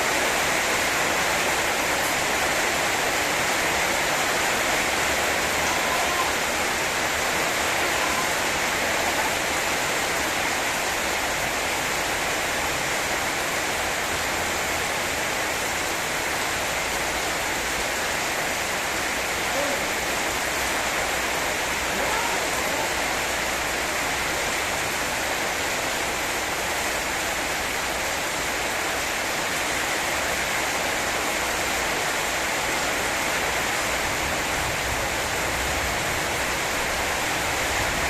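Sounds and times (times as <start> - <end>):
heavy rain pouring: 0.0 - 38.0.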